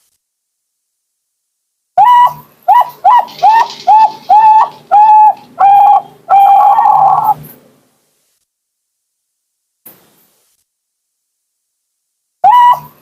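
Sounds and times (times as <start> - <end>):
dove cooing: 2.0 - 7.4, 12.4 - 13.0.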